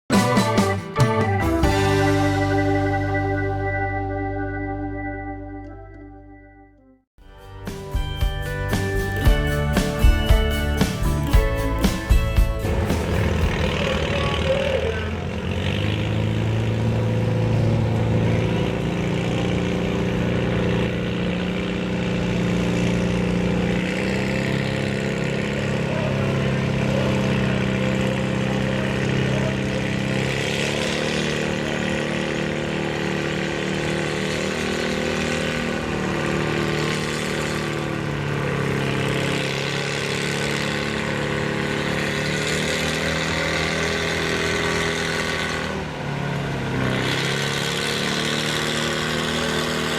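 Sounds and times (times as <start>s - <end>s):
tractor engine running: 7.2s - 49.9s.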